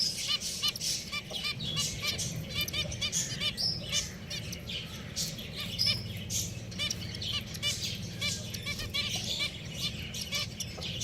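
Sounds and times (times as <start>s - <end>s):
finches calling: 0.0s - 11.0s.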